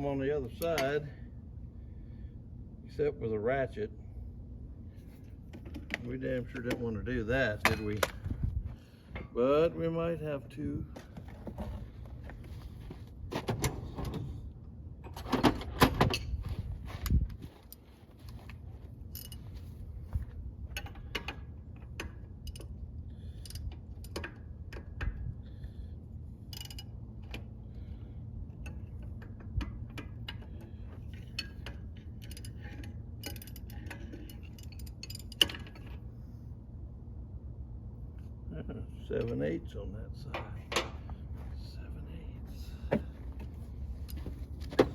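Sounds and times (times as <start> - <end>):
steady low hum: 0.0 - 44.9
metal tools clanking: 5.6 - 8.2, 19.1 - 19.6, 28.6 - 36.0.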